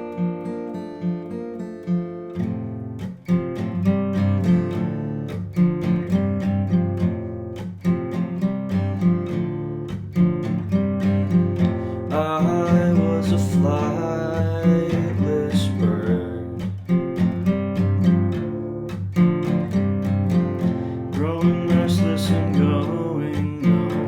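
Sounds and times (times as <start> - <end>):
guitar playing: 0.0 - 24.0.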